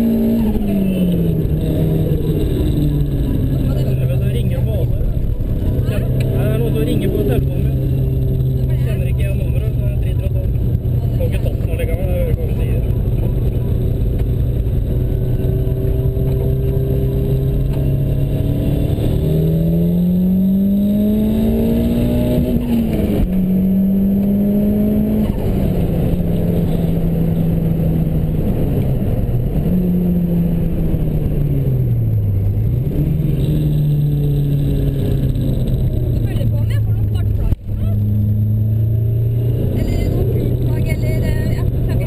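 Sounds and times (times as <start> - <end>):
car engine accelerating: 0.0 - 42.0.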